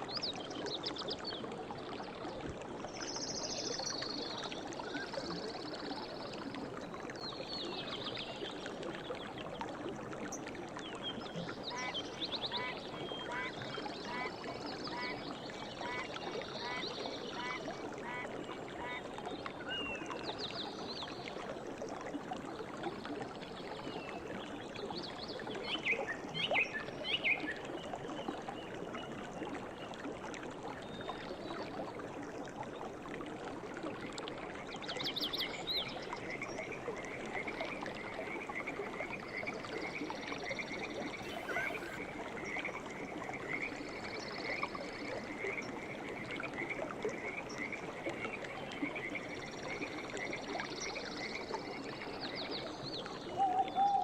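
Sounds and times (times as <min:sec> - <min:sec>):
flowing river water: 0:00.0 - 0:54.0
birds chirping: 0:41.2 - 0:42.0
repeating bird call: 0:41.2 - 0:42.0.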